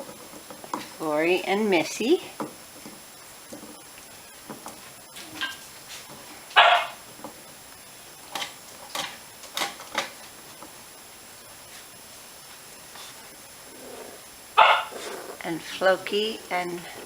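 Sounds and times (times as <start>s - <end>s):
puppies barking and yipping: 6.5s - 7.0s, 14.6s - 15.4s.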